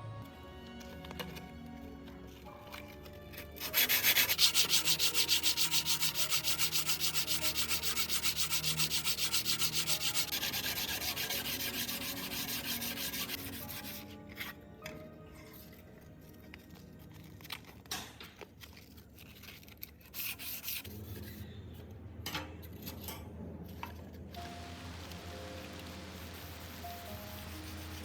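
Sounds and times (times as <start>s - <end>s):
knife blade being sanded by hand: 3.6s - 14.2s, 20.1s - 21.3s, 25.6s - 28.0s.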